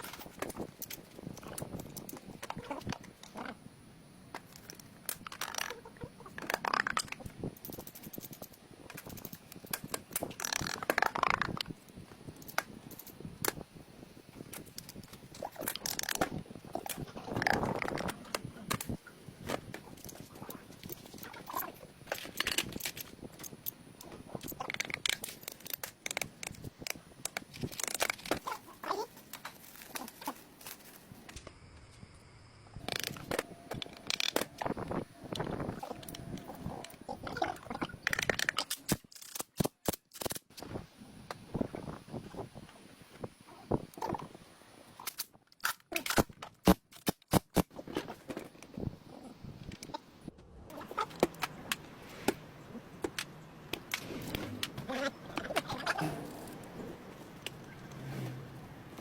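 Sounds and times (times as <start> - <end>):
scraping and crinkling: 27.4 - 31.4.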